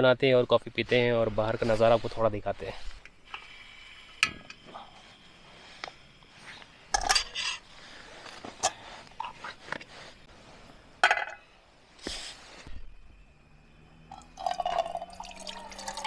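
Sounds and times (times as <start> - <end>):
camping cookware clinking: 2.8 - 10.2, 11.0 - 11.6.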